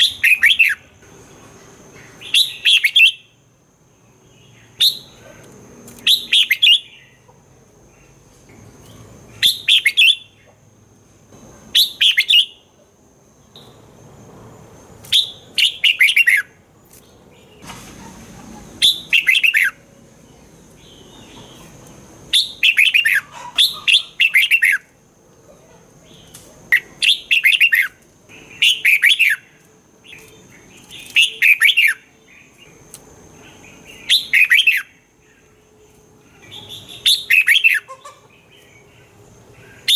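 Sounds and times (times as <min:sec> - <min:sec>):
bulbul singing: 0:00.0 - 0:01.1, 0:05.9 - 0:10.6, 0:15.0 - 0:17.6, 0:18.8 - 0:25.0, 0:26.0 - 0:39.9.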